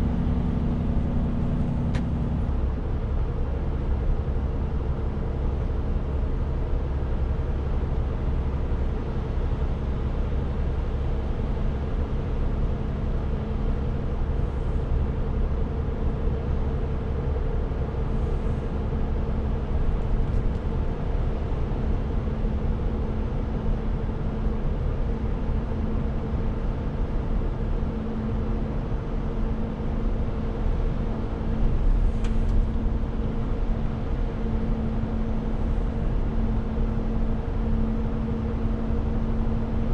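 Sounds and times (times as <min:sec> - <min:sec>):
truck engine running: 0:00.0 - 0:05.3.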